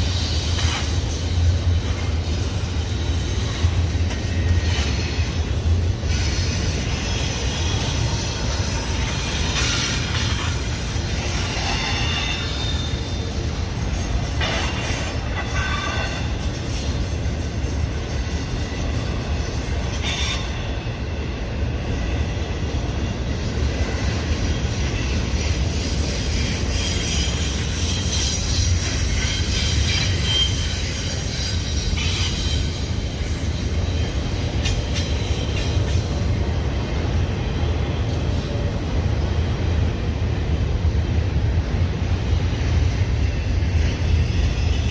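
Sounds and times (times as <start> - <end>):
freight train rumbling: 0.0 - 44.9
wheel squeal: 6.0 - 20.6, 24.8 - 36.0.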